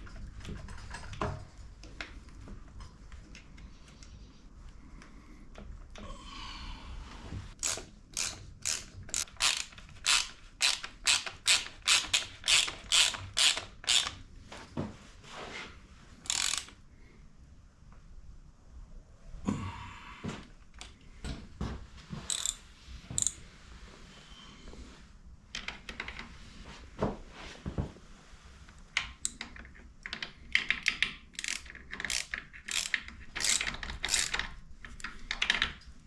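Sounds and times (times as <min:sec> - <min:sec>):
ratchet wrench clicking: 0:07.6 - 0:14.2, 0:16.2 - 0:16.8, 0:22.3 - 0:22.6, 0:23.2 - 0:23.4, 0:31.3 - 0:34.4.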